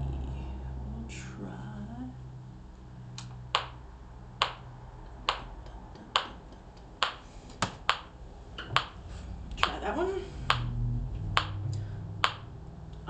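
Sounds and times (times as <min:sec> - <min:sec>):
metronome clicking: 0:04.4 - 0:04.7, 0:05.3 - 0:06.4, 0:08.8 - 0:09.0, 0:11.4 - 0:13.0.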